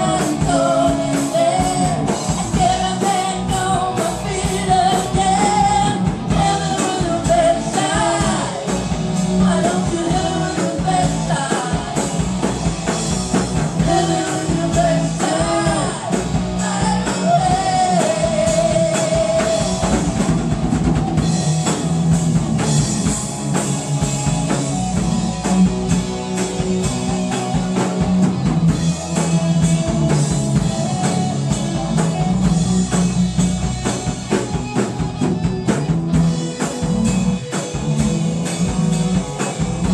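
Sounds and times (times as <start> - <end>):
person singing: 0.0 - 12.3, 13.8 - 20.0
rock band playing: 0.0 - 39.9.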